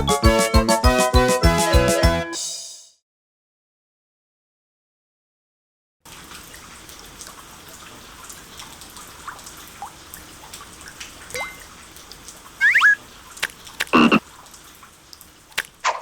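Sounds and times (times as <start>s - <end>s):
steady rain falling: 6.1s - 15.8s
water drips: 6.1s - 16.0s
rising plinks of water drops: 11.3s - 11.8s, 12.6s - 13.0s.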